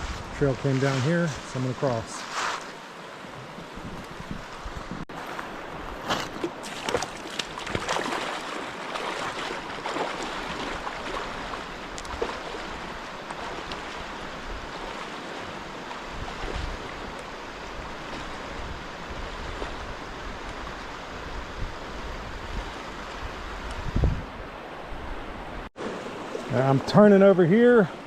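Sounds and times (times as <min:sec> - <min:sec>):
rushing creek water: 0:00.1 - 0:28.0
splashes of wading: 0:02.2 - 0:21.1, 0:25.8 - 0:27.0.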